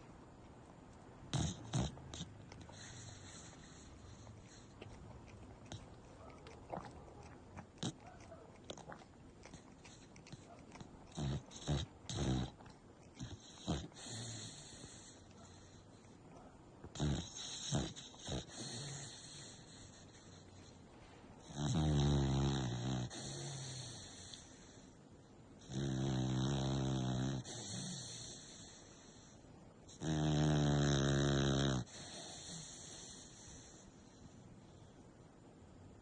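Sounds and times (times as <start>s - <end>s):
dog snoring loudly: 1.3s - 4.8s, 11.0s - 15.2s, 16.9s - 20.1s, 21.4s - 24.8s, 25.6s - 29.2s, 29.9s - 33.8s.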